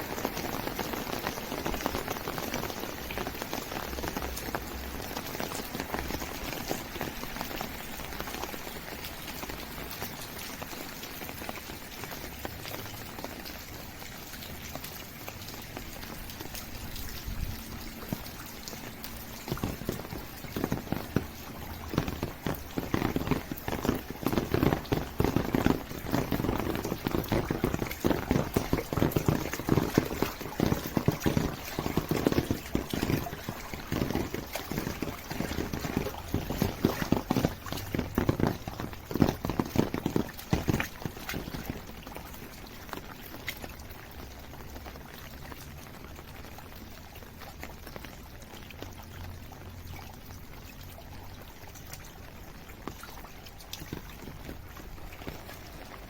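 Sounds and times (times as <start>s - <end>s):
steady rain falling: 0.0s - 56.0s
dense irregular knocking patter: 14.4s - 43.0s.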